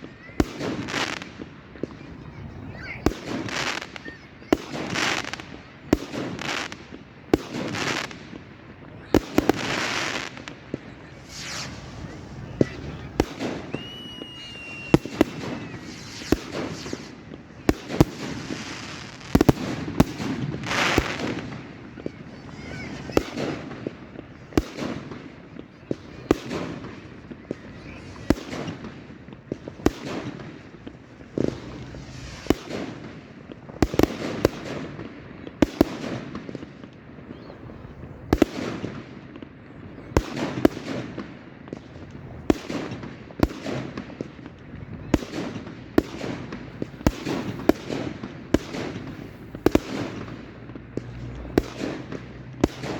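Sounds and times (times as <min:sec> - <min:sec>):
fireworks bangs: 0:00.0 - 0:52.9
fireworks crackling: 0:00.0 - 0:52.9
firework whistle: 0:09.1 - 0:21.4.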